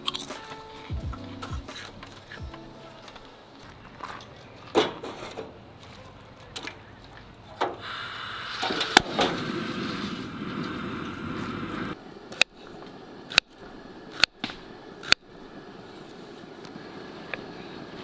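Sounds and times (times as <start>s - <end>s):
steady hiss: 0.0s - 3.8s, 7.6s - 18.0s.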